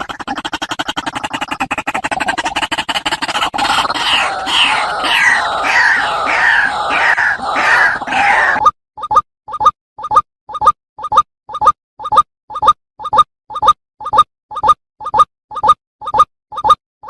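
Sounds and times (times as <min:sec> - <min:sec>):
waterhen calling: 0:03.6 - 0:08.6.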